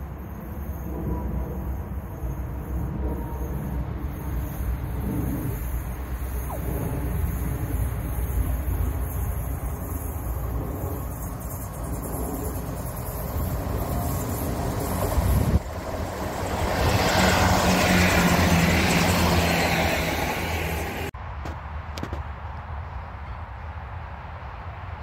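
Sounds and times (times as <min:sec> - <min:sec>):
diesel engine humming: 0:05.5 - 0:21.1
rush of wheels on rail: 0:07.7 - 0:21.1.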